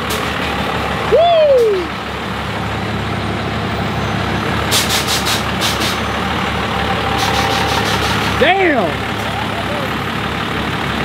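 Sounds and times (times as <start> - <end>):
truck engines running: 0.0 - 11.0
short sharp air hisses: 4.7 - 6.1, 7.1 - 8.4.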